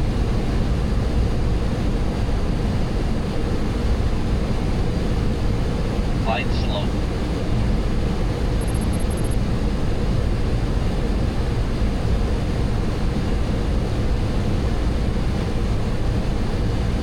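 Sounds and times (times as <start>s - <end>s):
aircraft engine noise: 6.0s - 7.6s
airflow over cockpit: 6.1s - 7.2s.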